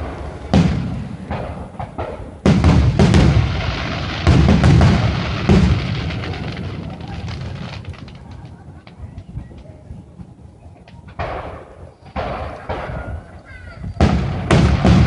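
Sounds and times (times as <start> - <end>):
fireworks booming: 0.0 - 15.0
fireworks popping: 0.0 - 15.0.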